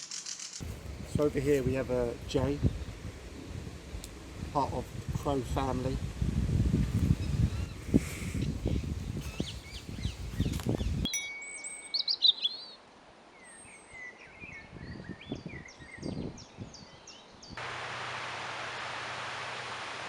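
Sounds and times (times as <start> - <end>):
songbirds chirping: 7.1 - 17.6
steady hiss: 17.6 - 20.0.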